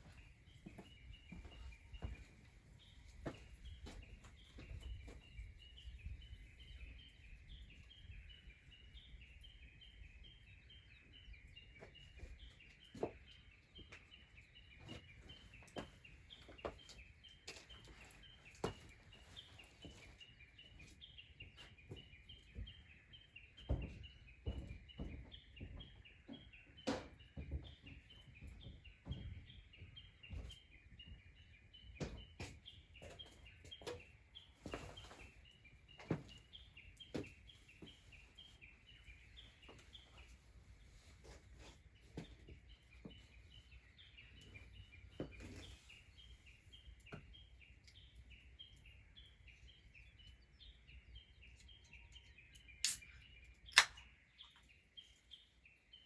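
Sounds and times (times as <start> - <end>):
sharp clicks and pops: 52.8 - 54.6.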